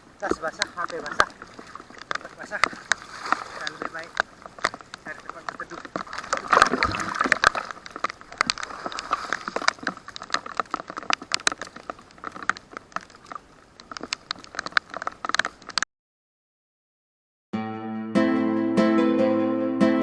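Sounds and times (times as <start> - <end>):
raindrops tapping: 0.0 - 15.8.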